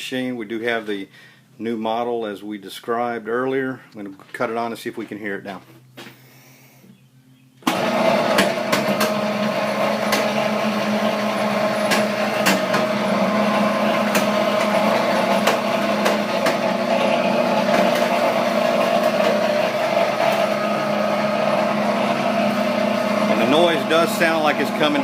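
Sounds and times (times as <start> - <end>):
sugar cane press motor hum: 7.6 - 25.0.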